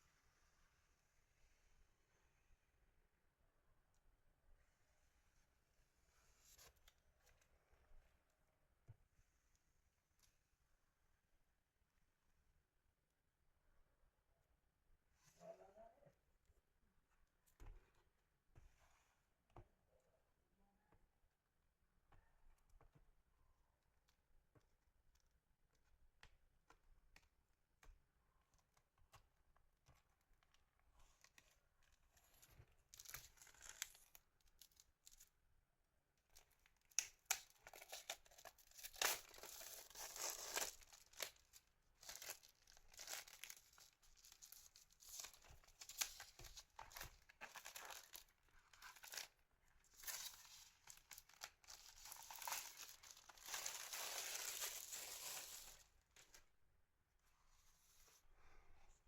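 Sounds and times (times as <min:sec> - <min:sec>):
packaging crinkling and tearing: 0:36.9 - 0:49.3, 0:49.9 - 0:55.8.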